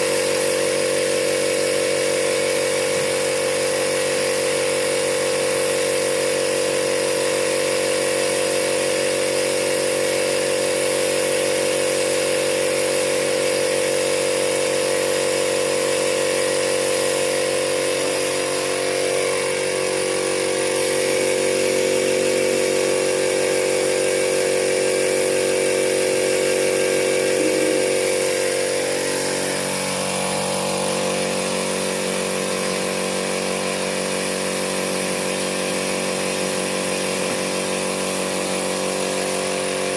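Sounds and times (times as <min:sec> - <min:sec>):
power tool motor running: 0:00.0 - 0:39.9.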